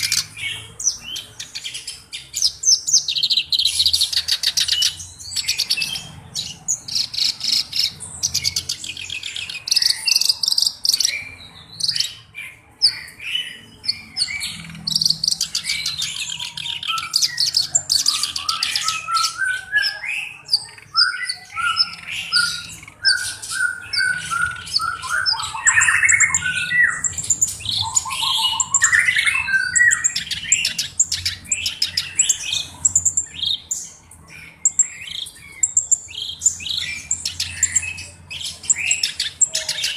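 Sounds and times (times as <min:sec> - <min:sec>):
reed warbler song: 0:00.0 - 0:39.9.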